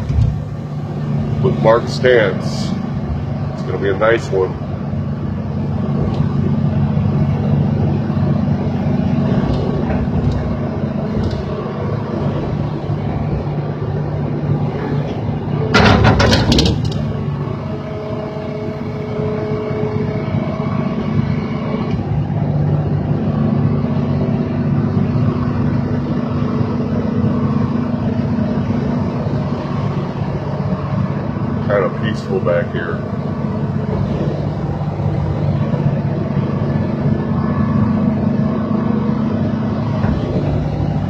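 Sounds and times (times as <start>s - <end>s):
excavator diesel engine running: 0.0s - 41.0s.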